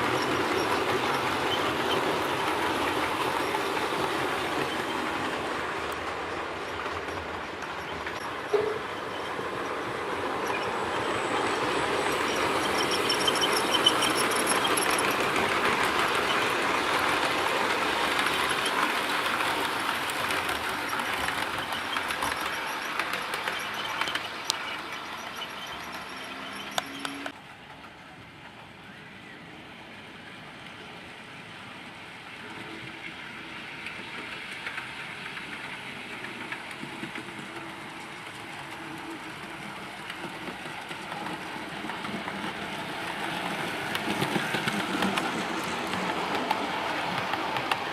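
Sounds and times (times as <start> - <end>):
model train running on track: 0.0 - 47.9.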